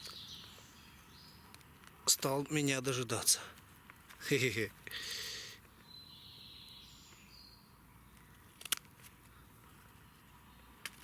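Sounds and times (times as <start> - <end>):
faint high bird chirping: 0.0 - 1.6, 5.7 - 8.6.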